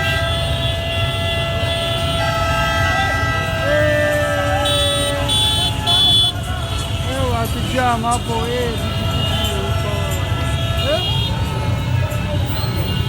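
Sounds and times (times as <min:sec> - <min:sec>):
vehicle horns held tones: 0:00.0 - 0:07.2
street traffic rumbling: 0:00.0 - 0:13.0.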